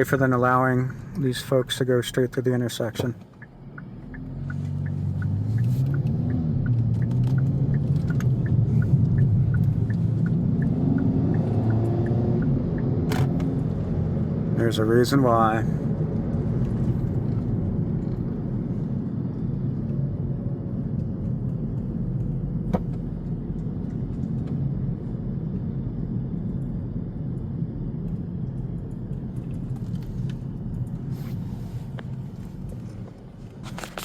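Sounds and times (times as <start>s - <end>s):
car driving rumble inside cabin: 0.0s - 34.0s.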